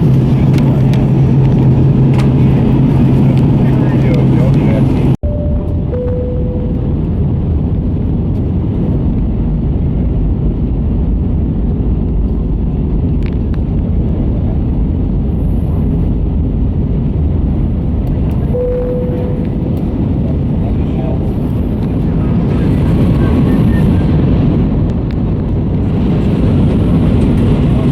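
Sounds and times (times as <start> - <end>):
airplane cabin rumble: 0.0 - 27.9
faint steady tone: 5.2 - 7.0, 18.5 - 19.6.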